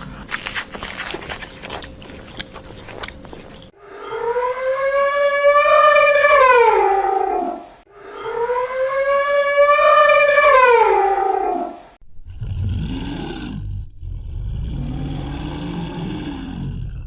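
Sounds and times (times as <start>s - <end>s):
dog howling: 3.8s - 12.0s.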